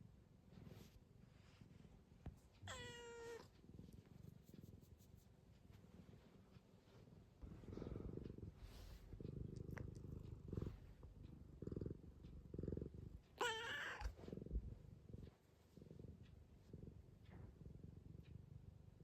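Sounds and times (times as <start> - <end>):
cat purring: 0.0 - 19.0
cat meowing: 2.6 - 3.5, 13.4 - 14.1.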